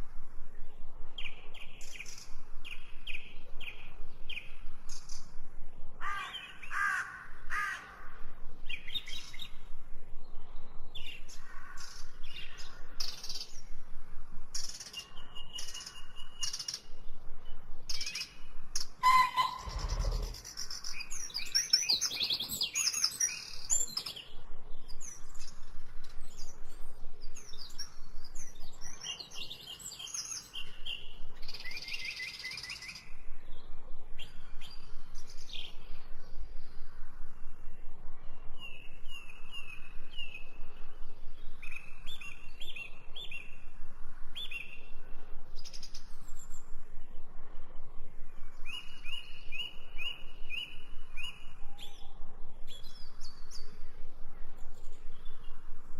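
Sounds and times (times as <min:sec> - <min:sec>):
songbirds singing and chirping: 0:00.0 - 0:55.9.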